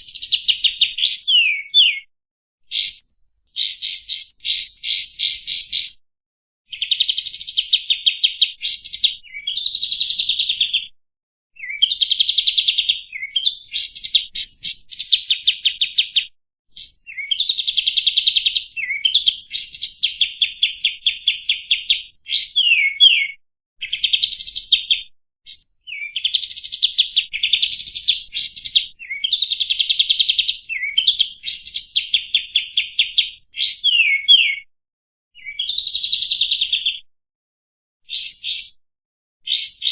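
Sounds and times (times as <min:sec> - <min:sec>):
songbird singing: 0:00.0 - 0:06.0, 0:06.7 - 0:10.9, 0:11.6 - 0:34.7, 0:35.4 - 0:37.0, 0:38.1 - 0:38.7, 0:39.5 - 0:39.9.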